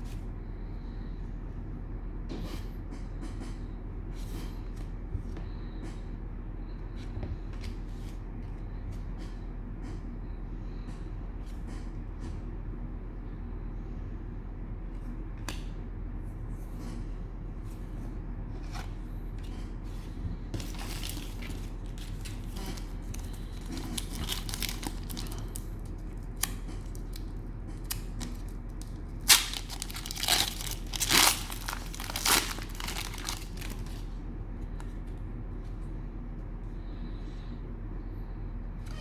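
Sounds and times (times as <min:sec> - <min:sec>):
steady low hum: 0:00.0 - 0:39.0
cellophane wrapper crinkling and tearing: 0:20.6 - 0:34.1.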